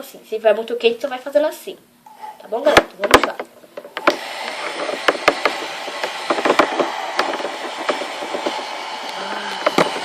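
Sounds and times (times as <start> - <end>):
hair dryer blowing: 4.0 - 10.0.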